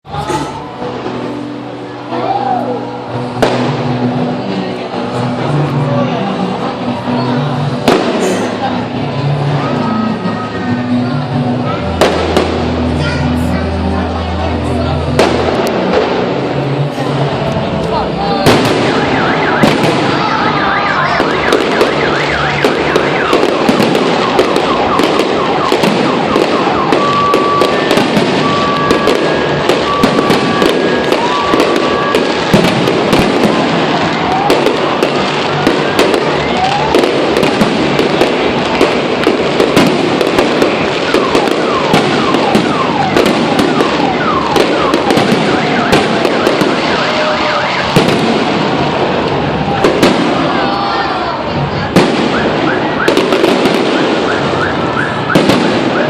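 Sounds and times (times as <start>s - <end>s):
fireworks bangs and crackles: 0.0s - 56.0s
whistling firework shells: 18.7s - 33.3s
high beeps: 24.6s - 32.1s.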